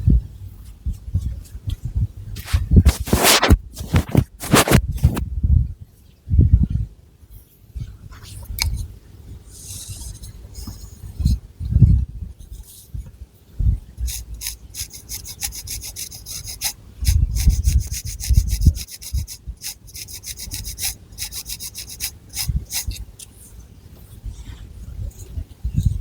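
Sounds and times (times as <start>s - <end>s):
fingernails scratching hair: 2.4s - 5.2s, 14.1s - 23.1s.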